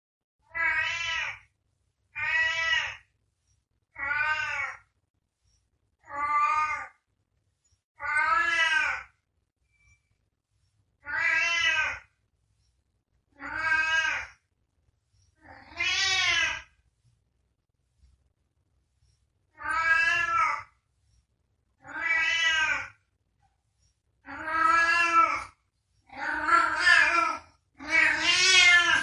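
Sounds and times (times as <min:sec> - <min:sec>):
cat meowing: 0:00.4 - 0:01.4, 0:02.2 - 0:03.0, 0:03.9 - 0:04.9, 0:08.0 - 0:09.1, 0:11.0 - 0:12.1, 0:13.4 - 0:14.4, 0:15.4 - 0:16.7, 0:19.6 - 0:20.7, 0:21.8 - 0:23.0, 0:24.2 - 0:29.0.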